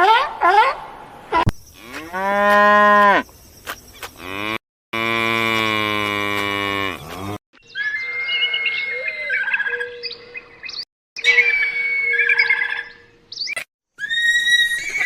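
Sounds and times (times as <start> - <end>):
cow mooing: 1.8 - 3.2, 4.2 - 7.4
birds chirping: 3.0 - 4.6.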